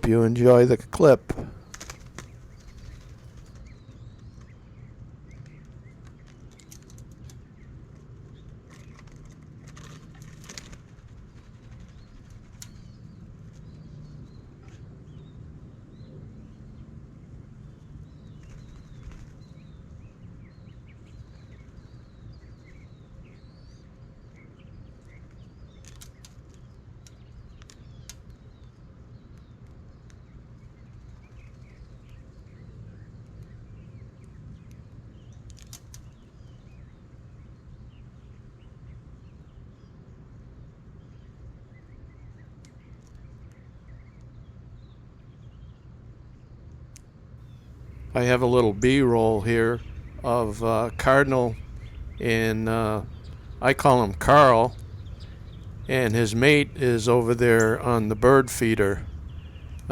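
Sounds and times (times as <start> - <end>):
small birds chirping: 0.0 - 40.0, 47.4 - 59.9
dove wings flapping: 1.3 - 4.5, 8.4 - 13.0, 18.4 - 19.5
low steady rumble: 47.6 - 59.9.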